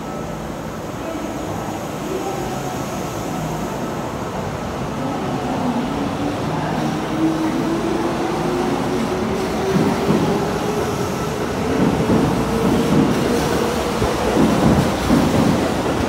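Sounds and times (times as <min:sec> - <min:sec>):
train running rumble: 0:08.4 - 0:16.0.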